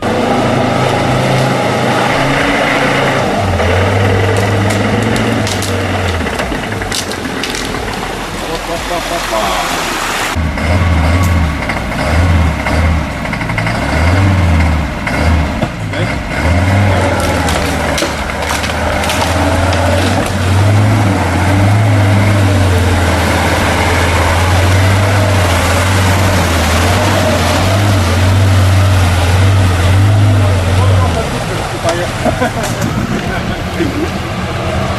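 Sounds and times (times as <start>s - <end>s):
off-road vehicle engine droning: 0.0s - 34.9s
clicks and knocks: 4.3s - 8.1s.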